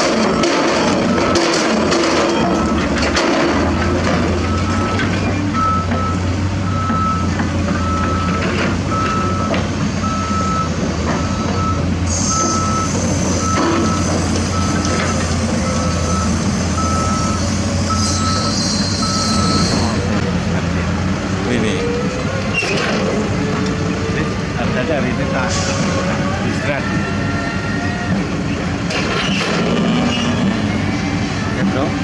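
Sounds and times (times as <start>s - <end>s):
diesel engine running: 0.0s - 32.0s
reversing alarm beeping: 0.3s - 1.6s, 2.2s - 2.9s, 4.3s - 20.2s.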